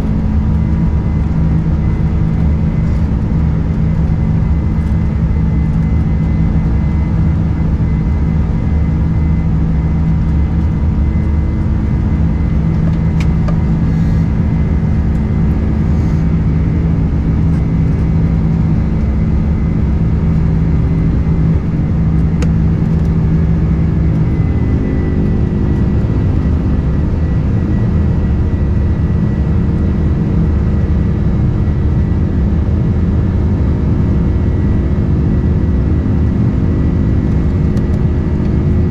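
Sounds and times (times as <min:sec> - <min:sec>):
jet engine drone in cabin: 0:00.0 - 0:38.9.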